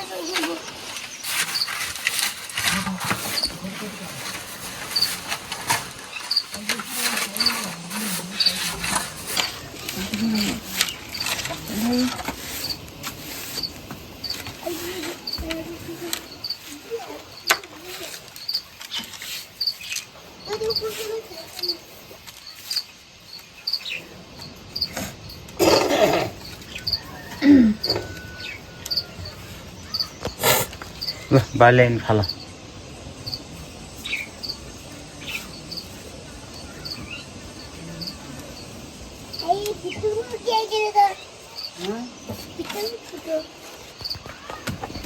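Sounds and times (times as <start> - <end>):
background hiss: 0.0 - 45.0
small animals chirping: 0.0 - 45.0.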